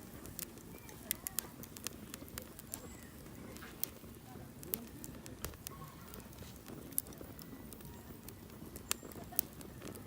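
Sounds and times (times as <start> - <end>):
campfire crackling: 0.0 - 10.0.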